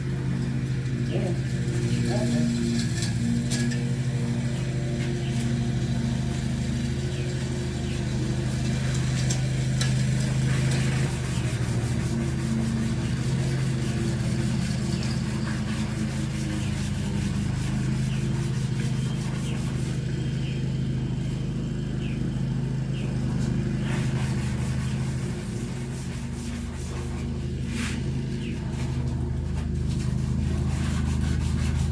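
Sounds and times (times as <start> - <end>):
sandpaper rubbing steel blade: 10.2 - 20.0, 23.8 - 28.0, 29.8 - 31.9.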